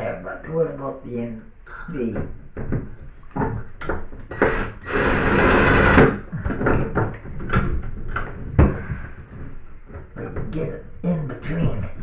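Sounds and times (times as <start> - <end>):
harsh rasping noise: 4.3 - 7.0.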